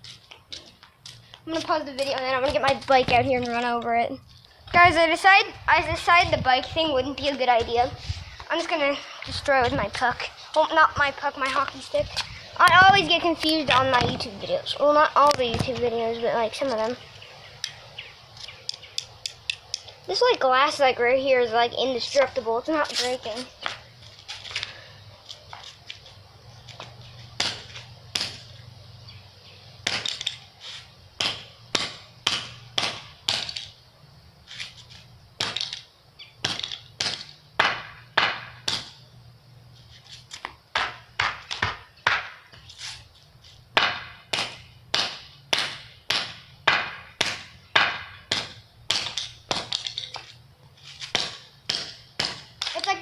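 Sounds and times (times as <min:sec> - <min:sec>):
hockey stick whacking toy car: 0:51.0 - 0:53.0.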